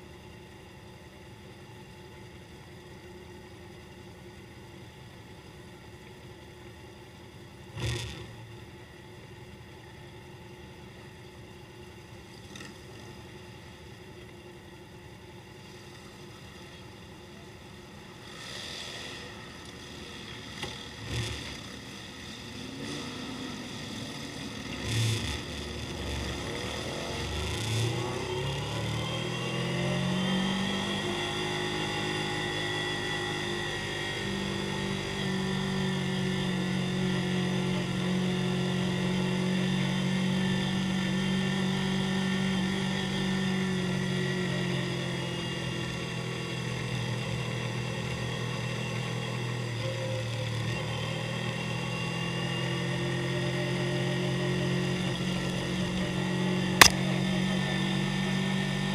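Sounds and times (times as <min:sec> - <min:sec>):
motorcycle engine revving: 0:07.7 - 0:08.5, 0:20.2 - 0:58.9.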